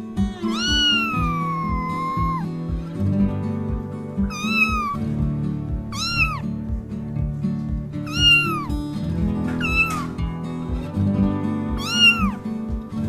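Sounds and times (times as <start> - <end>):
background music with beat: 0.0 - 13.0
cat meowing: 0.4 - 2.5, 4.2 - 5.1, 5.9 - 6.5, 8.0 - 8.7, 9.5 - 10.2, 11.7 - 12.4.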